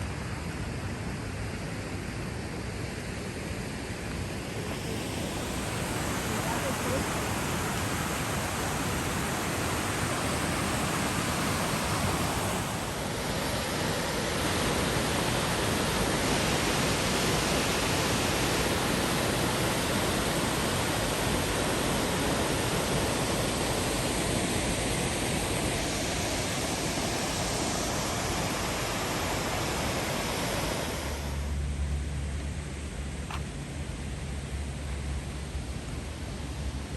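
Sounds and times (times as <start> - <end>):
waterfall rushing: 4.2 - 31.5.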